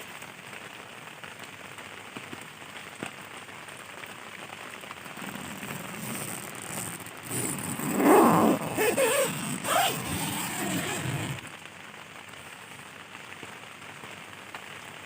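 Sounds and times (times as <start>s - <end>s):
heavy rain on a tent: 0.0s - 15.0s.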